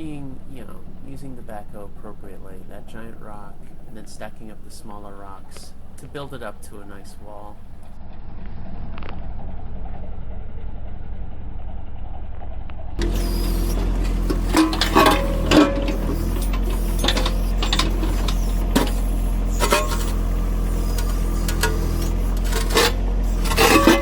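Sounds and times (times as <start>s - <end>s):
tractor diesel engine running: 0.0s - 24.0s
sharp clanks and knocks: 13.0s - 24.0s.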